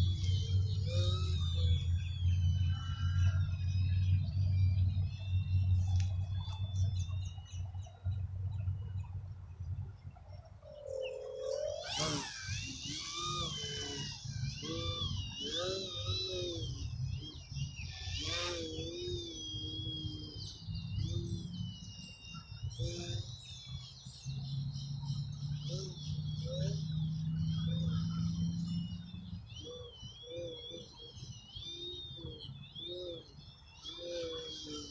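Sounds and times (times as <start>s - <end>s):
model airplane motor whining: 0.0s - 7.0s, 11.4s - 23.5s.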